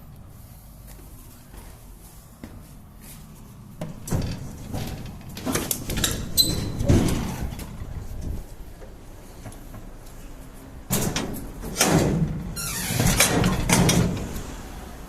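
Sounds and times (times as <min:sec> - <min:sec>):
metal clunks and rattles: 0:03.8 - 0:09.9, 0:10.9 - 0:14.5.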